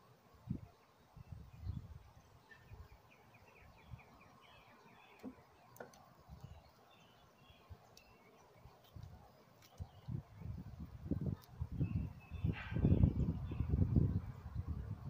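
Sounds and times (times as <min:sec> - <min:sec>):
bird singing faintly: 0:00.5 - 0:15.0.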